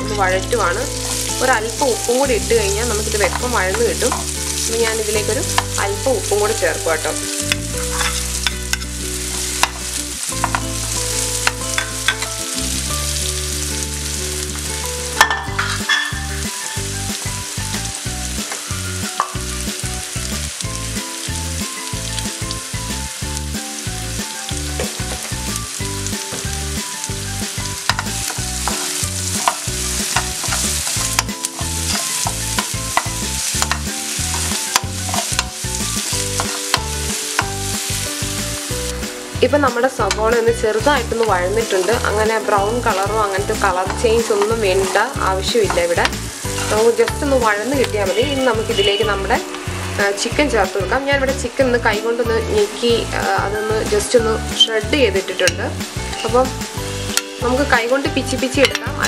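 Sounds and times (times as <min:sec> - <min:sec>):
onions sizzling in oil: 0:00.0 - 0:59.0
spatula scraping a pan: 0:07.4 - 0:09.8, 0:27.6 - 0:38.1, 0:43.8 - 0:47.3.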